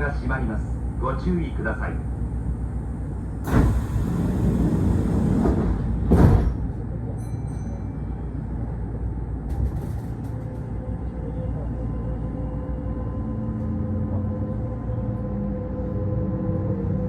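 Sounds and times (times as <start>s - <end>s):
low rumble of standing train: 0.0s - 17.0s
train doors sliding shut: 3.4s - 7.2s, 9.4s - 10.8s.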